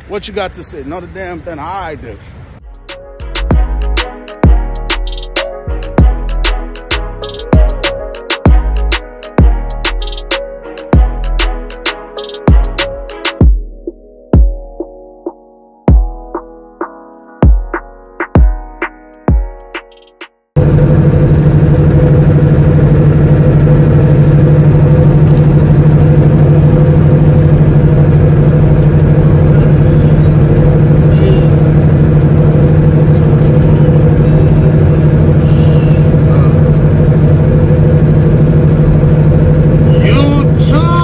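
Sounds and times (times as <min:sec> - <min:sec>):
truck diesel engine droning: 0:20.6 - 0:41.0.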